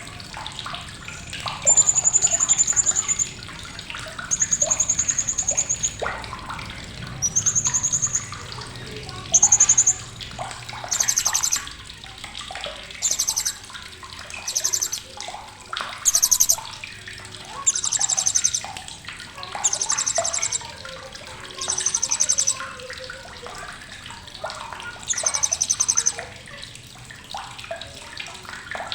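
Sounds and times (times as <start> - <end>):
parrot high rattling trills: 1.1 - 11.7, 12.9 - 15.1, 16.0 - 16.8, 17.5 - 22.8, 24.6 - 26.4.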